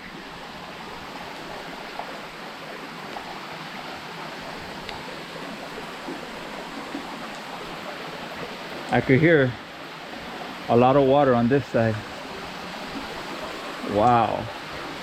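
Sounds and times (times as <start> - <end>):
water falling and trickling: 0.0 - 15.0
faint ticks: 4.8 - 5.0.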